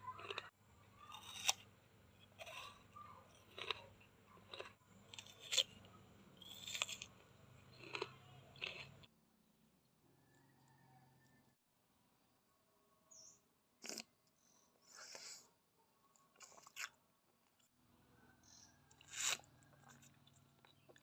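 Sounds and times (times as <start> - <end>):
crunching crisp food: 0.0 - 9.1, 13.8 - 14.3, 16.1 - 17.7, 18.4 - 21.0.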